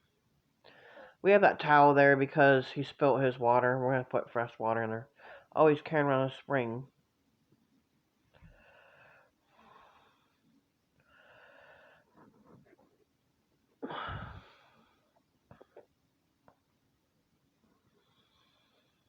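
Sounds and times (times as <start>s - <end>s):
person breathing: 0.6s - 1.2s, 5.2s - 5.5s, 8.4s - 12.5s, 13.8s - 15.2s, 17.9s - 19.0s.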